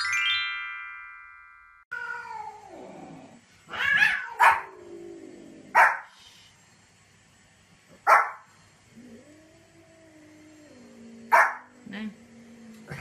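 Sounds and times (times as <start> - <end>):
chiming jingle: 0.0 - 1.9
cat meowing: 3.7 - 4.7
small dog yapping: 3.7 - 4.7.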